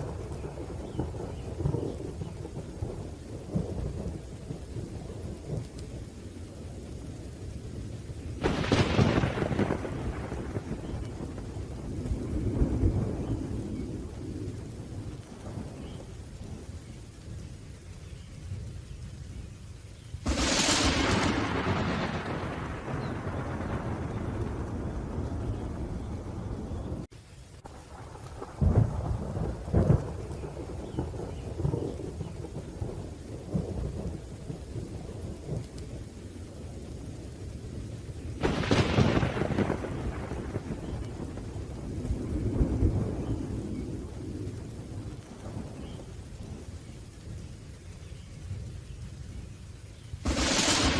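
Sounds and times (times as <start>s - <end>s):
thunder rumbling: 0.0s - 19.5s, 20.2s - 50.9s
steady rain: 0.0s - 50.9s.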